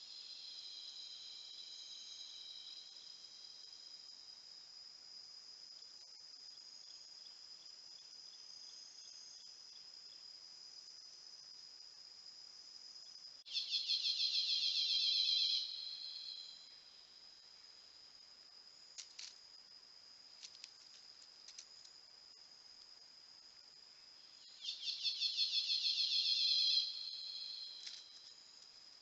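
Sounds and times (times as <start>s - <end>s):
insects trilling: 0.0s - 4.7s, 13.0s - 29.0s
fast-pulsing insect trill: 24.4s - 28.3s.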